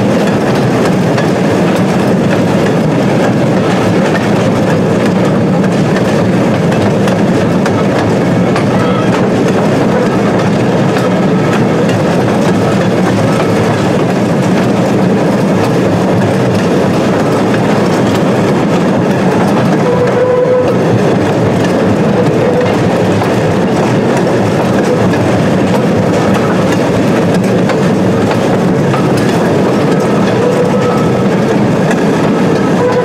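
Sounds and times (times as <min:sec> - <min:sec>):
train wheels clattering on rails: 0:00.0 - 0:33.0.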